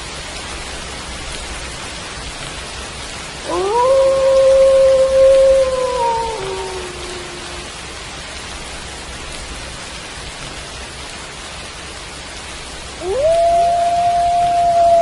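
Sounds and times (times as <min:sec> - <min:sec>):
steady rain falling: 0:00.0 - 0:15.0
wolves howling: 0:03.5 - 0:07.7, 0:13.0 - 0:15.0.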